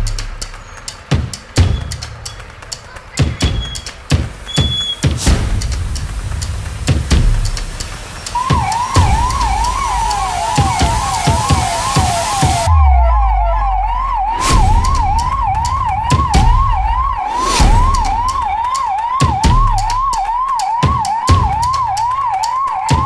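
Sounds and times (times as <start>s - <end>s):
scattered knocks: 0.0s - 12.7s
low rumbles: 1.5s - 18.8s
police siren yelping: 7.5s - 23.0s.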